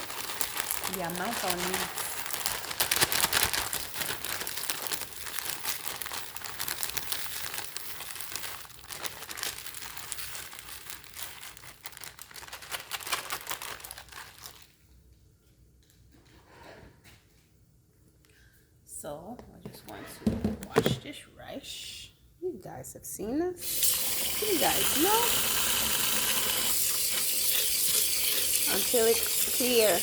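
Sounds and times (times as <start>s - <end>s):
plastic bag crinkling: 0.0s - 14.8s, 23.6s - 30.0s.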